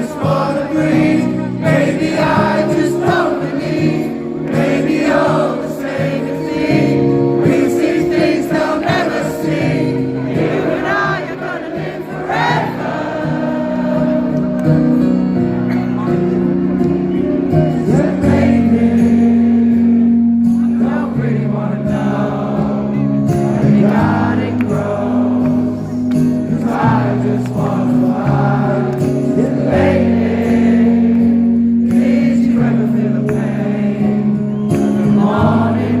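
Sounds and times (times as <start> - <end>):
live rock band playing: 12.4 - 36.0.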